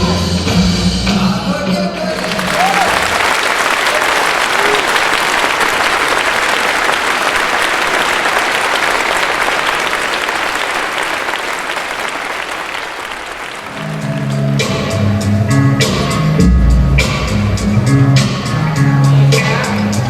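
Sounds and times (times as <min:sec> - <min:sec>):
audience applauding: 0:02.1 - 0:14.9.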